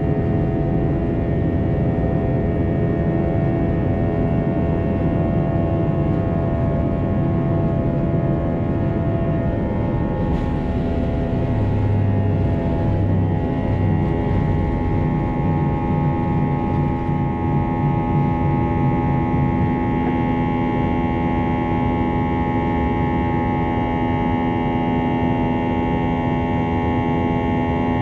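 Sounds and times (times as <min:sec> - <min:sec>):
low hum: 0:03.3 - 0:22.5
steady whining tones: 0:04.2 - 0:22.6
jet engine rush: 0:08.4 - 0:19.0.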